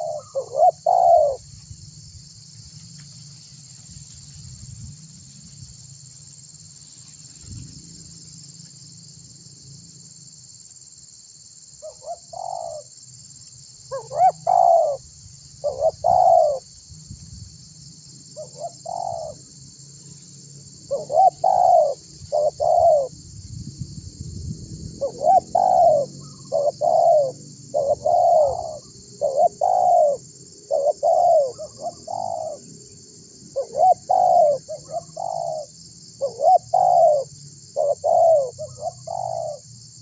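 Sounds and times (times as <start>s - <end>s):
dove cooing: 0.0s - 1.5s, 11.8s - 12.9s, 13.9s - 15.0s, 15.6s - 16.7s, 18.4s - 19.4s, 20.9s - 23.2s, 25.0s - 32.7s, 33.5s - 39.6s
high insect trill: 0.0s - 40.0s.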